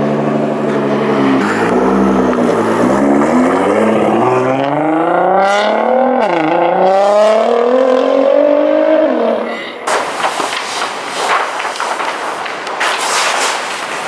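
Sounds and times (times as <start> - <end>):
car engine accelerating hard: 0.0 - 9.5.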